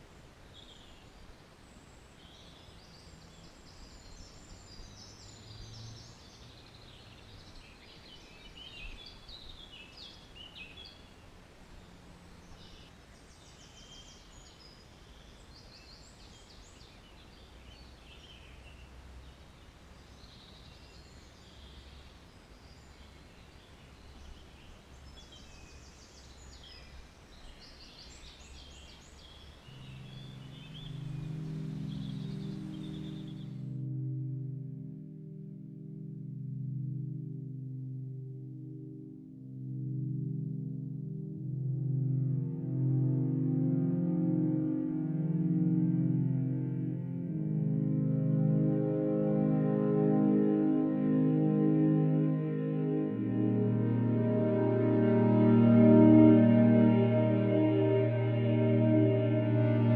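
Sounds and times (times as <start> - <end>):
faint birdsong: 0.0 - 34.0
low background hiss: 0.0 - 59.9.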